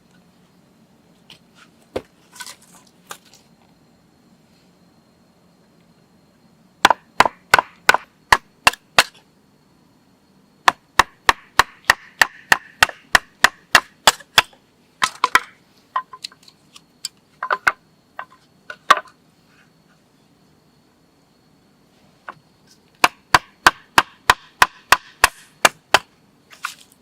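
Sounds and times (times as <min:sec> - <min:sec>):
blade chopping into wood: 0:06.9 - 0:09.2, 0:10.7 - 0:15.5.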